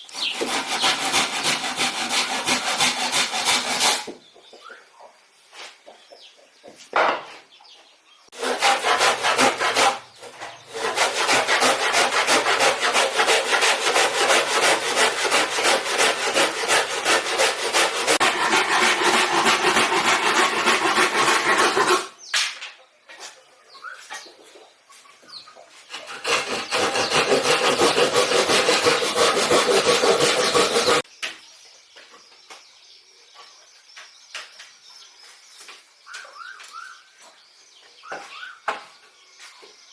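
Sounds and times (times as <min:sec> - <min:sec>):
hand saw cutting wood: 0:00.0 - 0:04.2, 0:08.4 - 0:22.2, 0:25.9 - 0:31.0.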